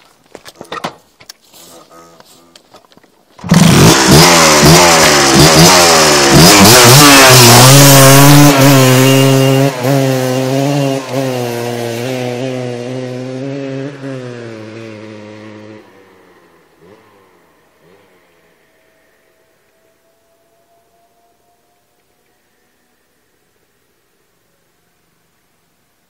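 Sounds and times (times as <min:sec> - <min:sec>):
two-stroke motorcycle engine revving: 0:03.4 - 0:19.4.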